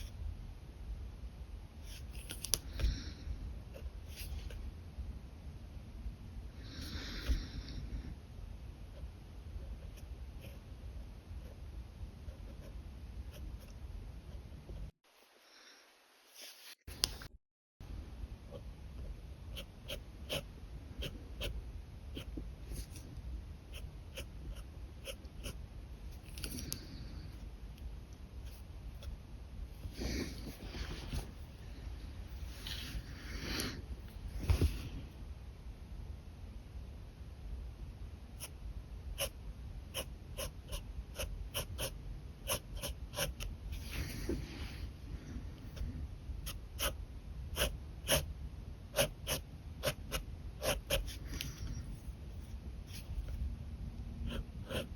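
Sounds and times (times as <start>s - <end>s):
pen scratching on paper: 19.5s - 23.0s, 23.7s - 25.6s, 39.2s - 44.1s, 46.4s - 48.3s, 48.9s - 51.8s, 54.2s - 54.9s.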